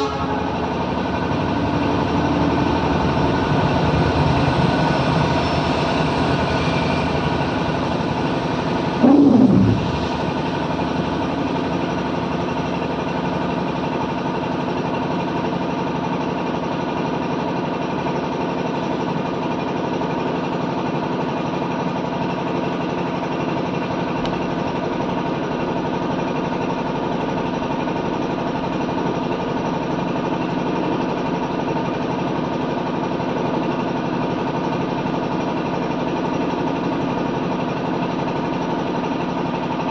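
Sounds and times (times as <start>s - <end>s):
loud sound falling in pitch: 9.0s - 10.3s.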